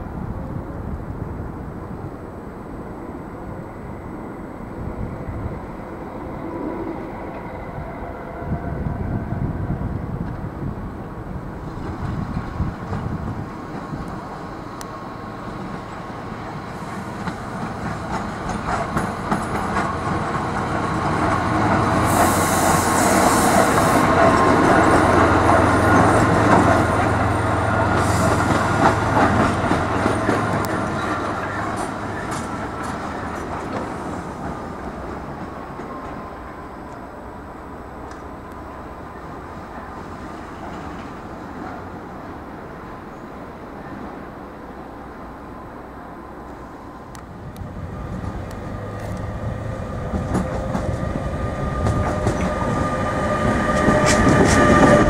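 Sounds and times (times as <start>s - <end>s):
train running hum: 0.0s - 55.0s
wheels clattering on track: 17.1s - 22.4s, 50.0s - 55.0s
high hiss: 21.9s - 24.5s.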